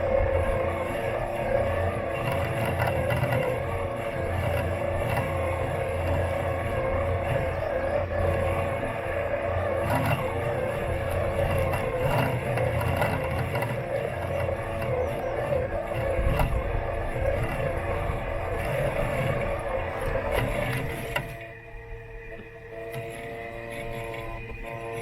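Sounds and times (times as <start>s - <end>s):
robot lawn mower whining: 0.0s - 25.0s.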